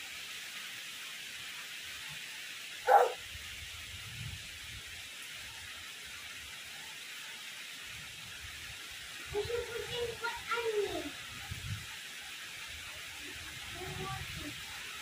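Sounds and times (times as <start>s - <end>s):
heavy rain: 0.0s - 15.0s
wind: 0.0s - 15.0s
animal call: 2.9s - 3.2s.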